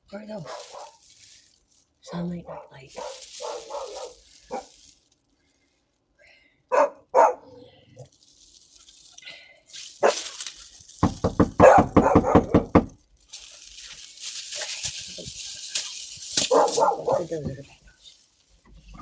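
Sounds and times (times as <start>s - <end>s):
dog barking: 0.4s - 1.0s, 2.1s - 4.7s, 6.7s - 7.7s, 10.0s - 10.4s, 11.6s - 12.7s, 16.4s - 17.3s
steady hiss: 8.2s - 11.4s, 13.2s - 19.0s.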